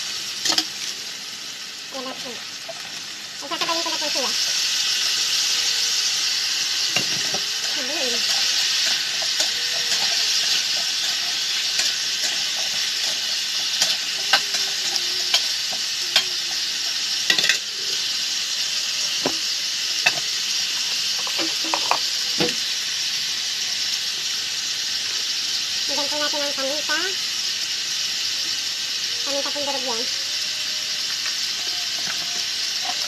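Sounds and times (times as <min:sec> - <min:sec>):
vegetables sizzling in oil: 0:00.0 - 0:33.0
utensil scraping a wok: 0:00.2 - 0:01.1, 0:02.0 - 0:22.7, 0:30.2 - 0:33.0.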